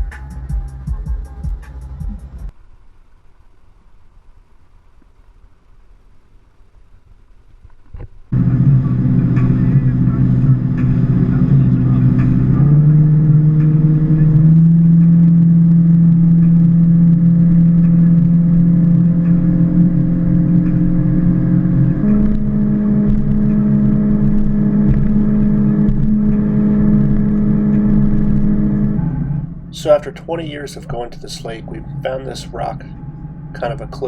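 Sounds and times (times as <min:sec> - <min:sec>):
boat engine running: 0:08.1 - 0:34.0.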